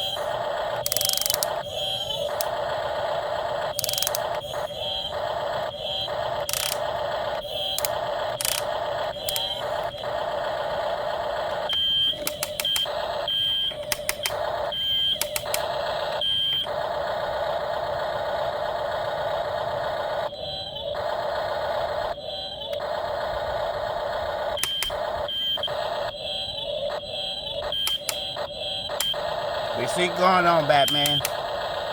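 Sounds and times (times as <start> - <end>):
small electric motor whining: 0.0 - 16.7, 26.9 - 31.5.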